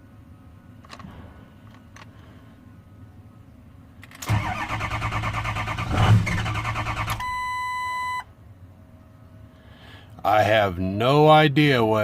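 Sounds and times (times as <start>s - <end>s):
diesel engine cranking: 4.0s - 7.5s
steady electronic beep: 7.2s - 8.2s.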